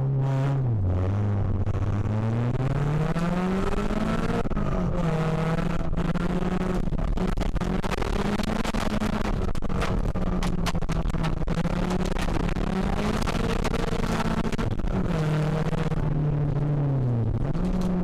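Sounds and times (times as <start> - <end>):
car engine revving: 0.0 - 18.0
gravel knocking against car: 8.5 - 14.7.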